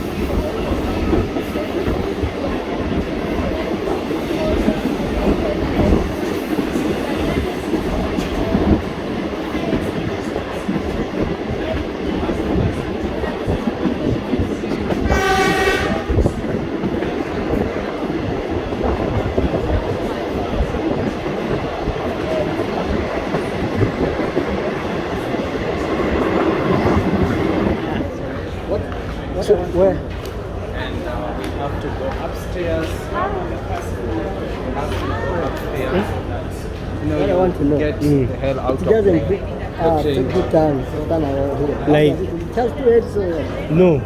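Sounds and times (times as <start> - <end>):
train wheels rumbling on rails: 0.0 - 44.0
train knocks: 18.8 - 30.4.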